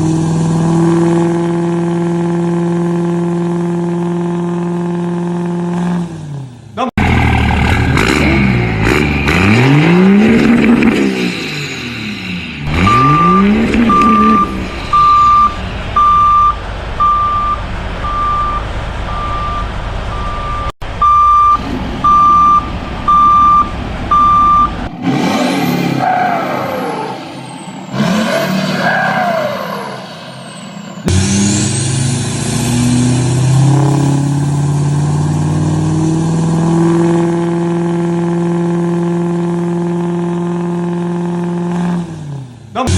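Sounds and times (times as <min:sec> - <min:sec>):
engine running: 0:00.0 - 0:29.0, 0:29.6 - 0:42.9
engine revving: 0:00.0 - 0:42.9
reversing alarm beeping: 0:12.7 - 0:24.8.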